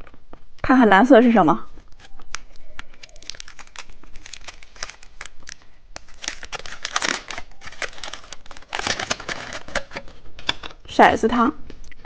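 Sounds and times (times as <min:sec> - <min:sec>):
plastic wrapper crinkling and tearing: 0:01.7 - 0:10.8.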